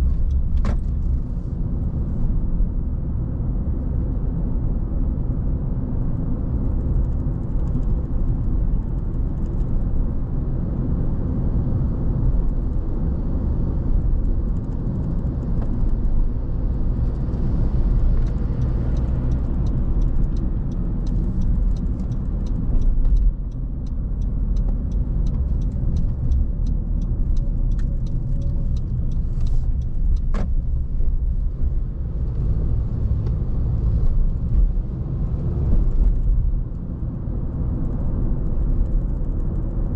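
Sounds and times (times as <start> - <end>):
car tyres and engine rumble: 0.0 - 39.9
faint evenly spaced ticks: 18.1 - 31.4.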